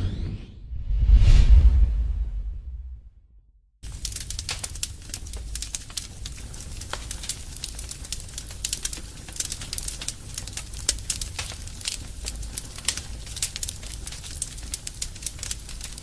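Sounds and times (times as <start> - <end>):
steady low rumble: 0.5 - 7.1
fire crackling and popping: 3.8 - 16.0.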